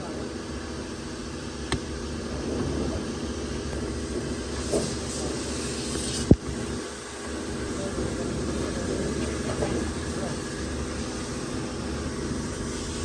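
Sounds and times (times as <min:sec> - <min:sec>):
car wash machinery humming: 0:00.0 - 0:13.0
hissing spray: 0:04.0 - 0:13.0.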